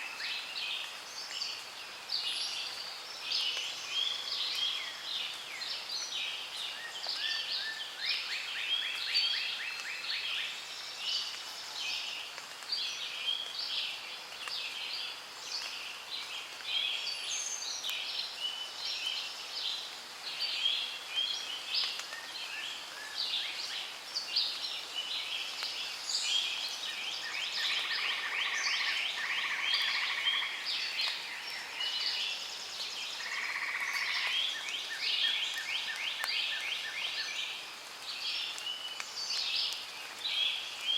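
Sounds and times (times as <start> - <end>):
chorus of birds chirping: 12.8 - 40.9.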